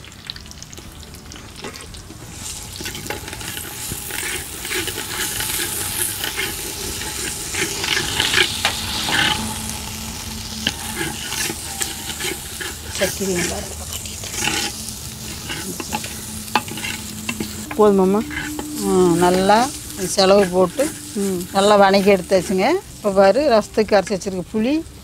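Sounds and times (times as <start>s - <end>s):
paste sizzling in oil: 0.0s - 25.0s
spoon stirring and scraping: 2.4s - 23.3s.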